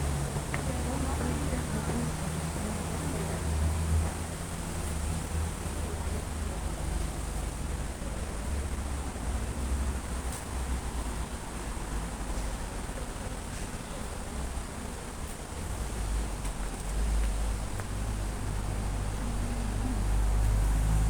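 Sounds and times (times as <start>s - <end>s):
light drizzling rain: 0.0s - 21.0s.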